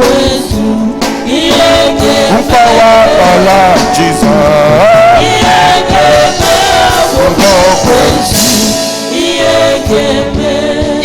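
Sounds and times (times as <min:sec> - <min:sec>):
congregation singing: 0:00.0 - 0:11.0
lead singer: 0:00.0 - 0:11.0
live band playing: 0:00.0 - 0:11.0.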